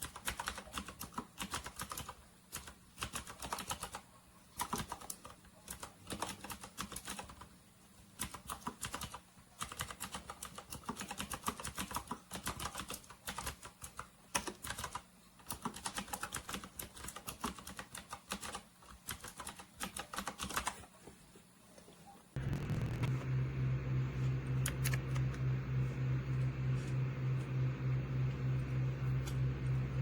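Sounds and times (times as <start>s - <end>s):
clicky mechanical keyboard typing: 0.0s - 4.0s, 4.6s - 7.5s, 8.2s - 20.8s
steady low hum: 22.4s - 30.0s.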